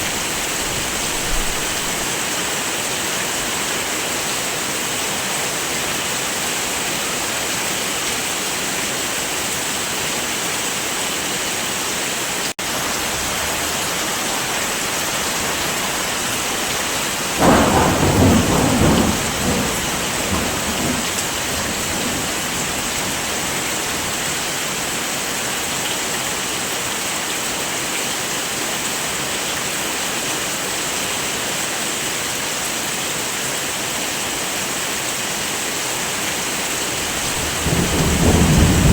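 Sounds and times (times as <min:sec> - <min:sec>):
thunder rumbling: 0:00.0 - 0:02.1, 0:15.1 - 0:24.4, 0:36.7 - 0:38.9
heavy rain falling: 0:00.0 - 0:38.9.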